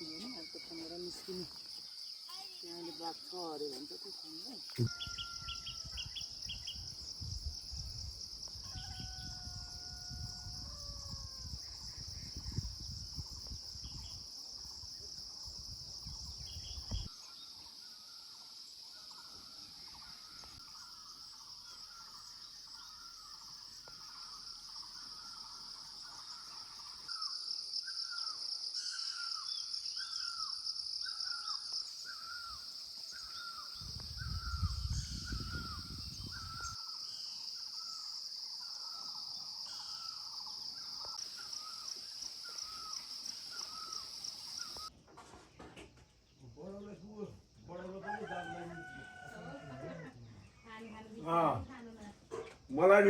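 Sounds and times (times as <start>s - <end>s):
wind on microphone rumble: 6.8s - 14.2s, 15.5s - 17.1s, 33.8s - 36.8s.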